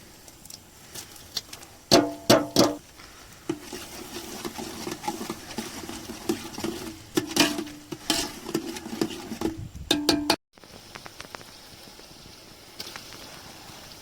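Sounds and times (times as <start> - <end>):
spoon scraping in metal pot: 3.5 - 10.3.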